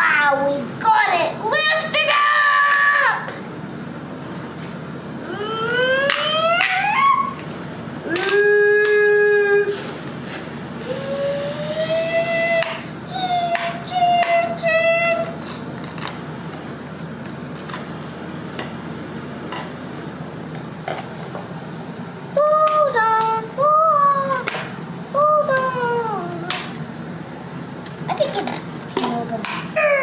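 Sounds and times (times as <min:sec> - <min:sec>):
steady low hum: 0:00.0 - 0:30.0
child singing wordless notes: 0:10.8 - 0:15.6, 0:22.4 - 0:26.7.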